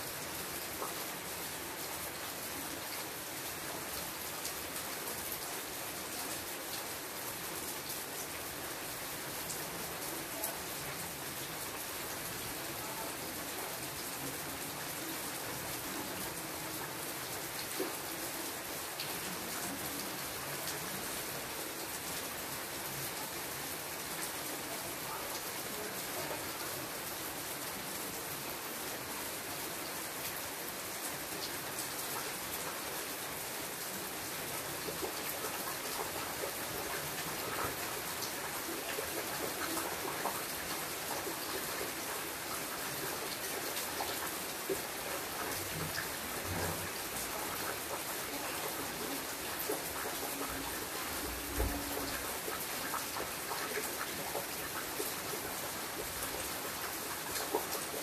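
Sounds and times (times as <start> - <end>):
rain on leaves: 0.0 - 58.0.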